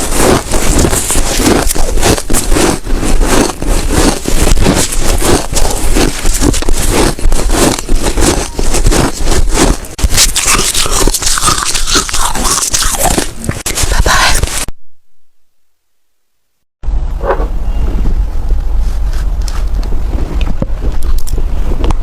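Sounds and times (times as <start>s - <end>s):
person chewing ice crunchily: 0.0s - 14.7s.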